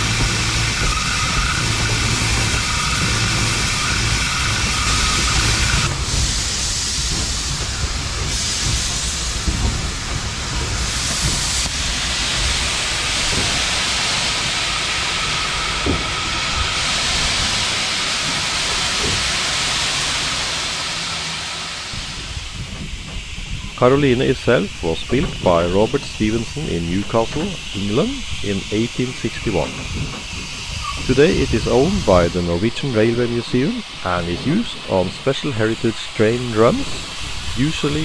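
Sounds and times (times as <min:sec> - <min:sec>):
steam locomotive hissing steam: 0:00.0 - 0:38.0
low rumble: 0:21.5 - 0:38.0.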